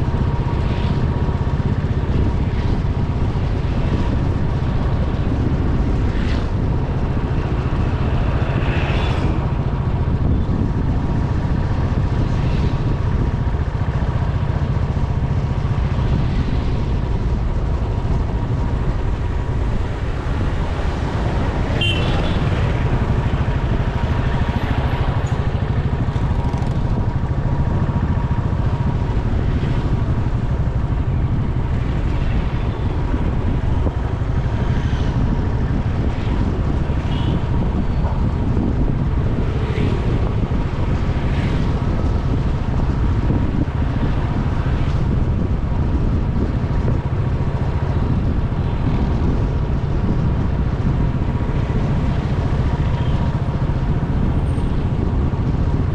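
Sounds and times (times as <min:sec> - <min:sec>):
motorcycle running: 0:00.0 - 0:55.9
wind on microphone: 0:00.0 - 0:55.9
high-pitched traffic sounds: 0:16.9 - 0:44.7.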